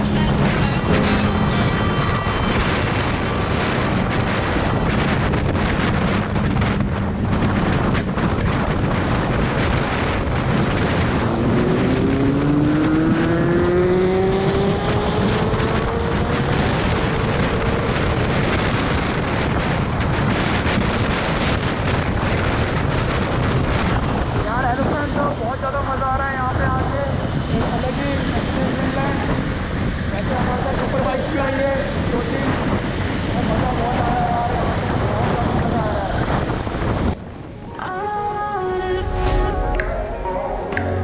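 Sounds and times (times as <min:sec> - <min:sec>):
wind rush on microphone: 0:00.0 - 0:41.0
motorcycle engine accelerating: 0:10.4 - 0:18.3.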